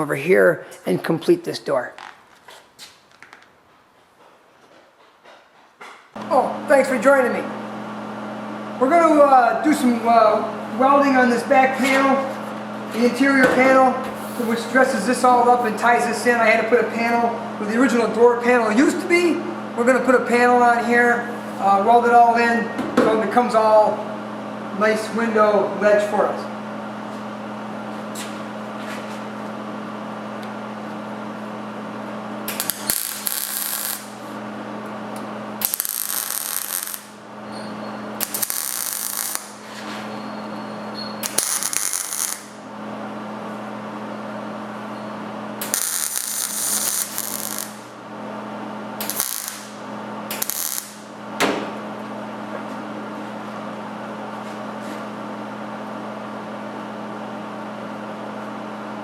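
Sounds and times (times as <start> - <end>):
welder electrical hum: 0.0 - 59.0
crackling arc welding: 32.4 - 34.4, 35.6 - 37.3, 38.1 - 39.8, 41.2 - 42.6, 45.6 - 48.0, 49.0 - 51.2.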